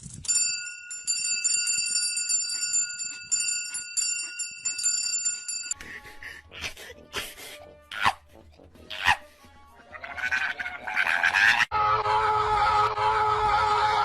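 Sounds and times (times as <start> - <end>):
bells jingling: 0.0 - 6.0.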